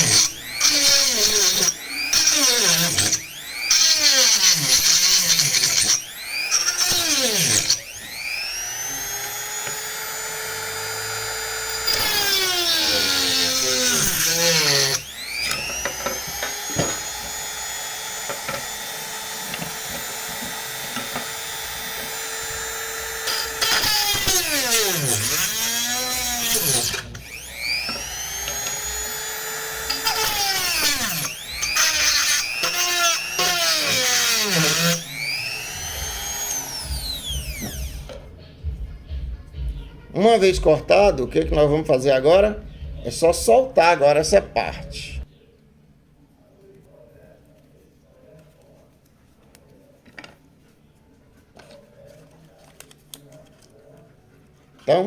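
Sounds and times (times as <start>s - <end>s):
rotary tool whining cutting plastic: 0.0s - 38.3s.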